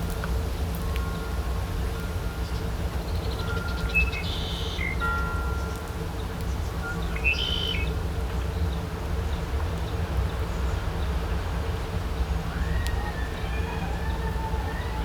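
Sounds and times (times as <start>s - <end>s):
songbirds chirping: 2.5s - 5.0s, 5.6s - 11.2s.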